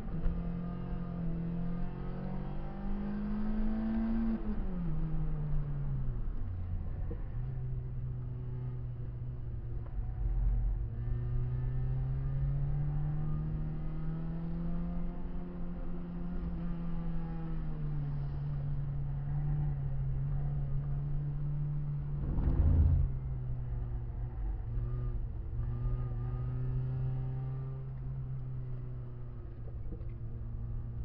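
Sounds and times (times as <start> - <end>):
car engine revving under load: 19.6 - 30.6
loud thump: 22.2 - 23.2.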